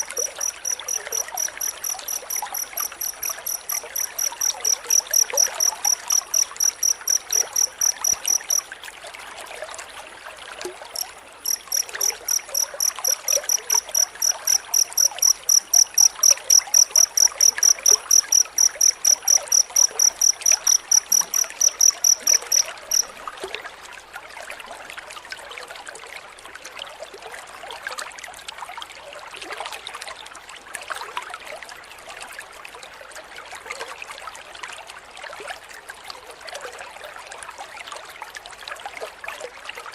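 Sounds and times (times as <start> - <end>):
cricket chirping: 0.0 - 8.7, 11.0 - 23.2
trickle of running water: 0.0 - 39.9.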